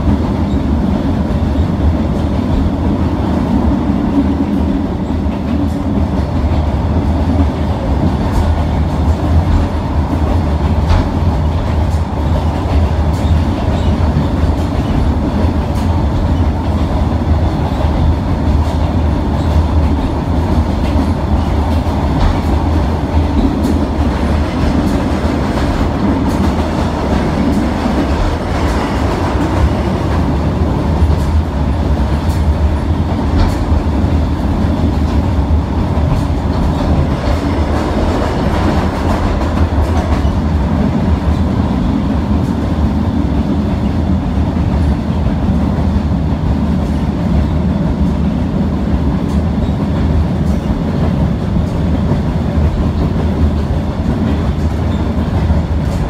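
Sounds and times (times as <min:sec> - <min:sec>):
train wheels rumbling on rail: 0:00.0 - 0:56.0
wheels clicking over rail joints: 0:05.3 - 0:41.4.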